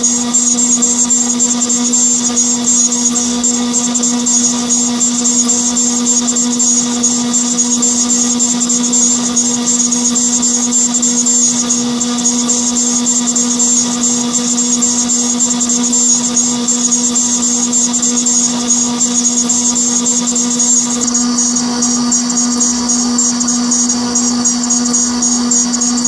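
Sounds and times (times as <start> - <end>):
machine spindle humming: 0.0 - 26.0.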